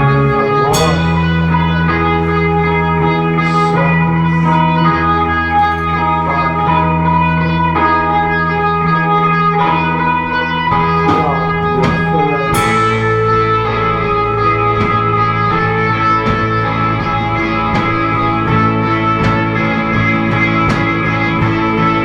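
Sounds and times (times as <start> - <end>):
bass guitar: 0.0 - 22.0
electric guitars ringing chords: 0.0 - 22.0
cymbal hits: 0.5 - 8.7, 10.5 - 16.6.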